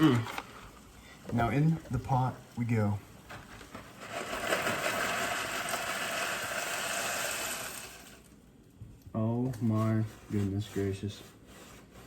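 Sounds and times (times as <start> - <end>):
dry pasta pouring into a pot: 4.0 - 8.3.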